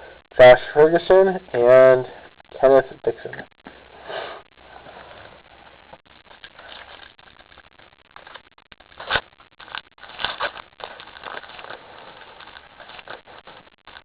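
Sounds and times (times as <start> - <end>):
foil pack crinkling: 6.0 - 14.0
cards rustling: 6.3 - 14.0.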